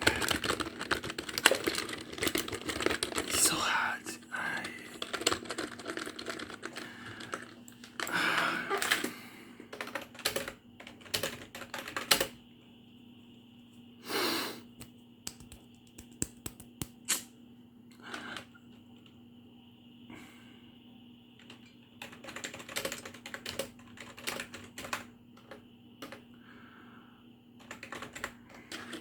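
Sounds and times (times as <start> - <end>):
keyboard keys clicking: 9.8 - 12.3, 22.0 - 26.2, 27.6 - 29.0.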